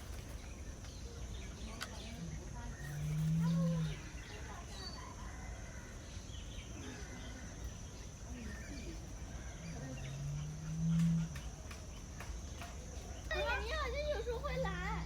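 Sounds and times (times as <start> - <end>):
murmur of distant voices: 0.0 - 15.0
high insect drone: 6.9 - 15.0.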